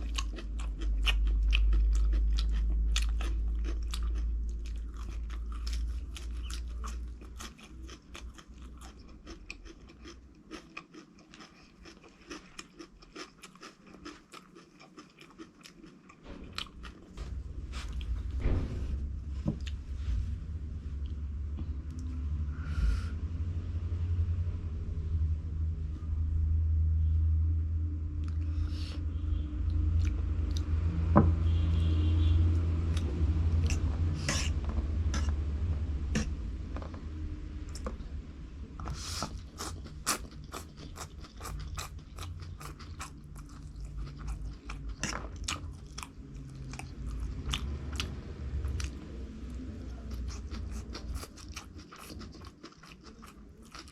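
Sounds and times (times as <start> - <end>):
chewing crunchy food: 0.0 - 17.2, 32.9 - 36.4, 38.8 - 53.9.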